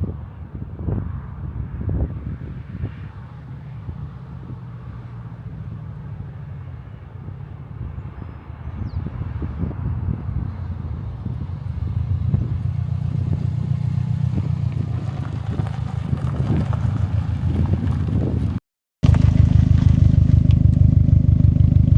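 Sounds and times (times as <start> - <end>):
car engine running: 10.2 - 21.9.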